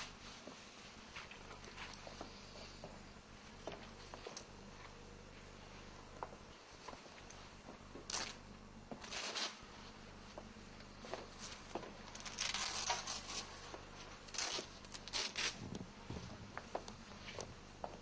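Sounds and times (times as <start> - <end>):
people rustling and shuffling: 0.0 - 8.0.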